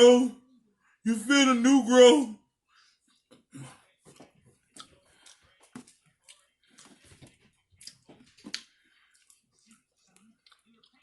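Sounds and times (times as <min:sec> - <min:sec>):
chewing clicks and smacks: 0:04.7 - 0:07.2, 0:07.8 - 0:11.0.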